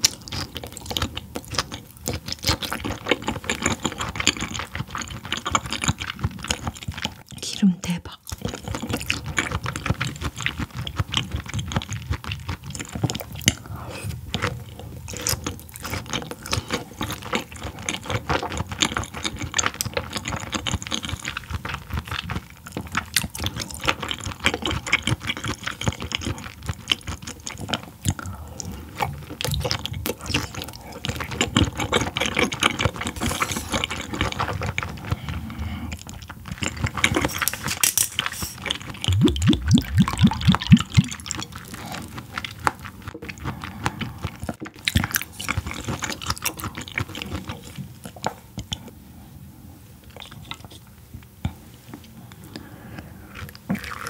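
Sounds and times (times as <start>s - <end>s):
wet mouth clicks chewing: 8.2s - 48.9s.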